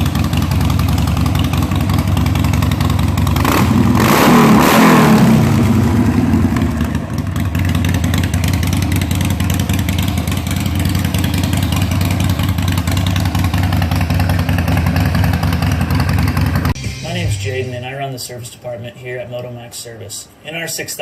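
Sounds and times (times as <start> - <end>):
motorcycle engine idling: 0.0 - 16.8.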